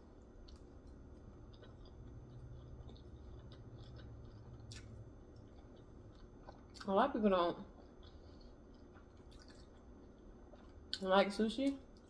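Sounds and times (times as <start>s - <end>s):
quiet chewing: 0.0s - 6.9s, 7.6s - 11.0s
low steady hum: 0.0s - 12.0s.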